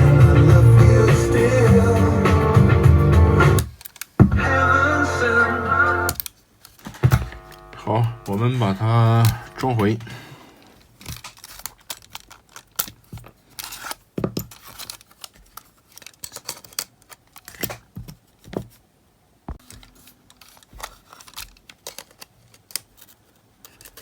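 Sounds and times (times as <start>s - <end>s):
plastic and metal parts clicking: 3.6s - 4.2s, 10.8s - 18.8s, 19.6s - 24.0s.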